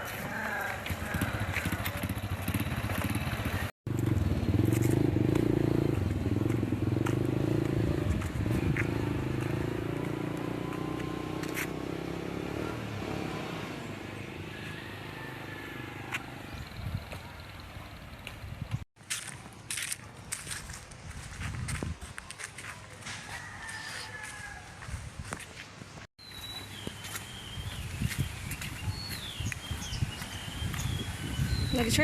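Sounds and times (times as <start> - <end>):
small motorcycle engine running: 0.7 - 13.2.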